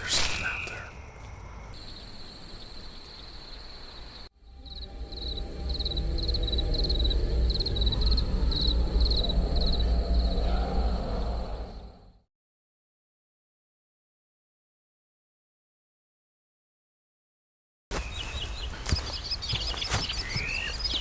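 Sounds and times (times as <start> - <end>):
crickets trilling: 0.0 - 12.1, 18.0 - 21.0
cricket chirping: 0.0 - 12.2
low rumble: 4.4 - 12.2.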